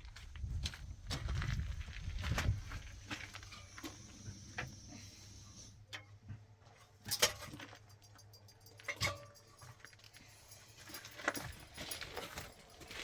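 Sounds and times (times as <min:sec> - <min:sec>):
knocks and clinks of objects: 0:07.0 - 0:13.0.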